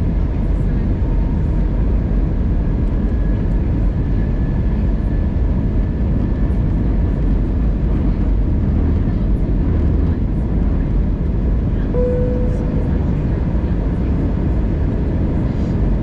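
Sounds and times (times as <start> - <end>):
airliner cabin engine rumble: 0.0 - 16.0
faint high steady whine: 12.0 - 13.6.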